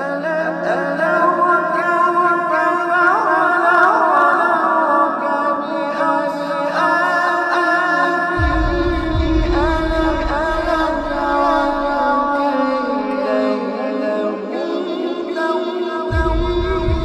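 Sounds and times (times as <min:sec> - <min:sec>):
voices singing in harmony: 0:00.0 - 0:17.0
low drone: 0:08.4 - 0:12.5.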